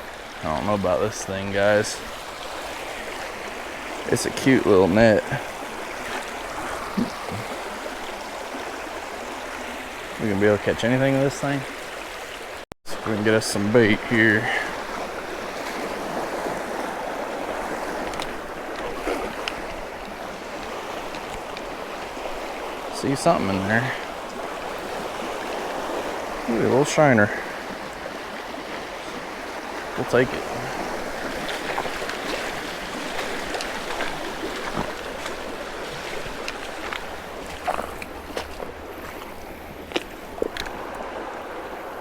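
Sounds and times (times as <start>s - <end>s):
creek water running: 0.0s - 42.0s
water splashes: 0.0s - 42.0s
faint small splashes: 30.4s - 41.2s.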